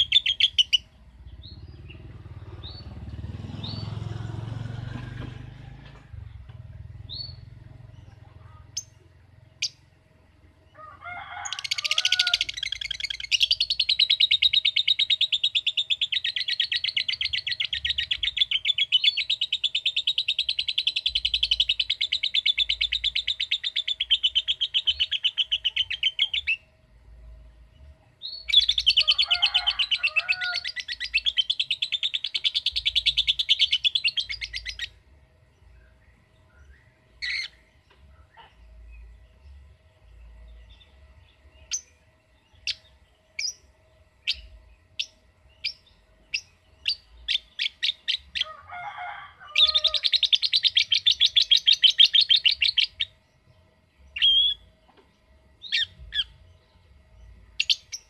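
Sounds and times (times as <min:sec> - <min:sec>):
bird chatter trills: 0:10.7 - 0:26.7, 0:28.2 - 0:35.0, 0:36.6 - 0:48.7, 0:49.5 - 0:58.0.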